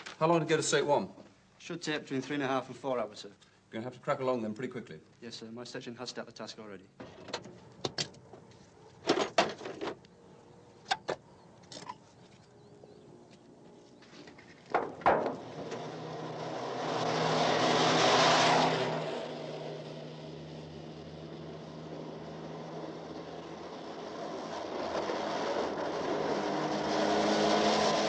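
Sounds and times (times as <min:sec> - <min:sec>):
sharp knocks and clanks: 0:09.0 - 0:10.0, 0:14.3 - 0:15.6
vehicle passing close by: 0:15.4 - 0:28.0.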